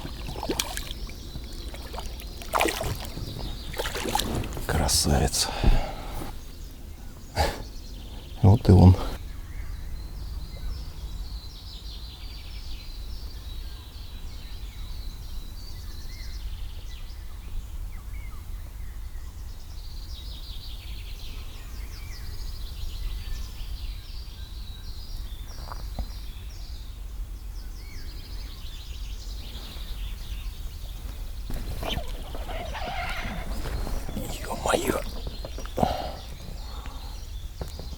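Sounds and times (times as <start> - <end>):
birds chirping and trilling: 0.0 - 9.8, 29.3 - 37.9.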